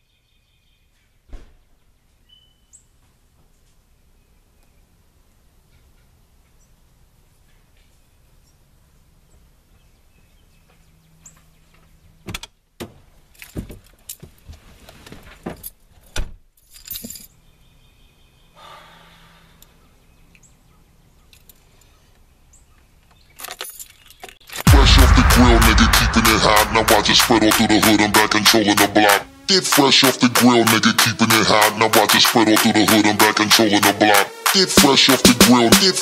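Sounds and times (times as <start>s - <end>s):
keys jangling: 16.6s - 17.4s.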